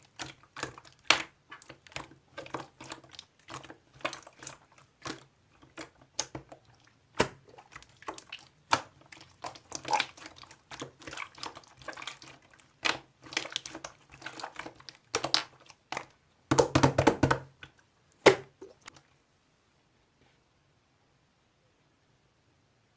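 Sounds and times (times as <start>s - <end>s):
slime clicking and popping: 12.8s - 16.9s.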